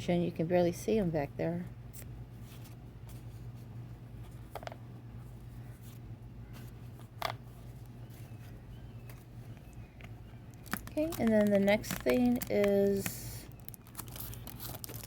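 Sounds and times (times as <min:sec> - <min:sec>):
steady low hum: 0:00.0 - 0:15.0
paper cards tapping: 0:10.0 - 0:13.2.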